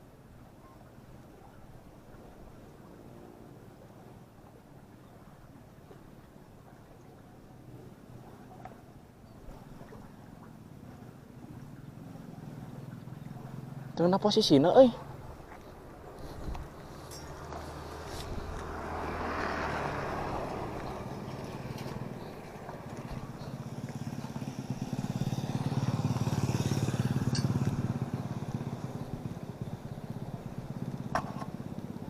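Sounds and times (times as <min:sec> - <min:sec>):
motorcycle engine passing: 0:11.4 - 0:15.4, 0:16.2 - 0:32.0.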